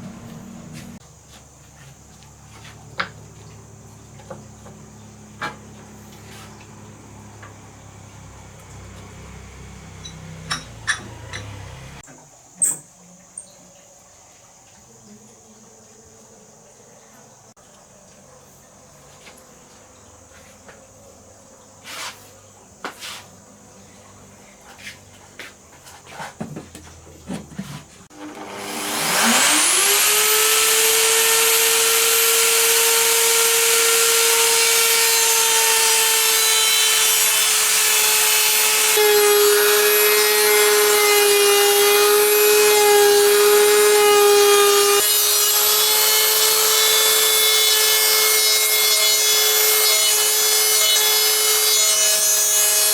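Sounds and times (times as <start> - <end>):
power tool working wood: 5.4 - 12.0, 28.1 - 52.9.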